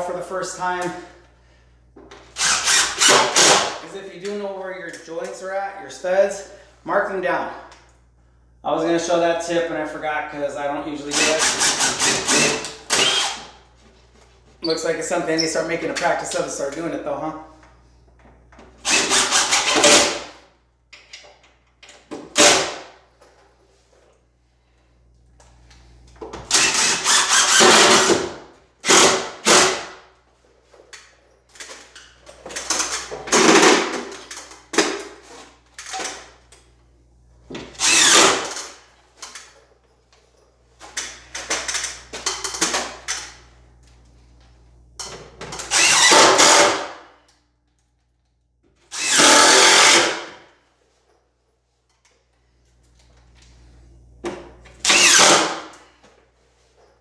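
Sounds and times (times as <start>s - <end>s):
screw gun whirring: 2.3s - 3.8s, 11.1s - 13.6s, 18.8s - 20.2s, 26.5s - 28.2s, 37.8s - 39.5s, 45.6s - 47.0s, 48.9s - 50.3s, 54.8s - 55.8s.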